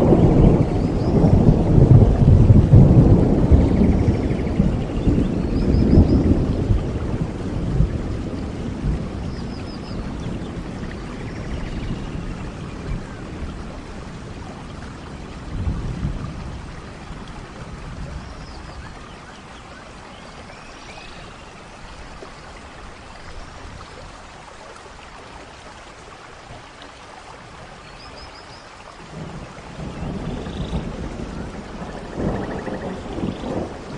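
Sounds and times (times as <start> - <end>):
thunder rumbling: 0.0 - 19.0, 29.0 - 33.9
steady rainfall: 0.0 - 33.9.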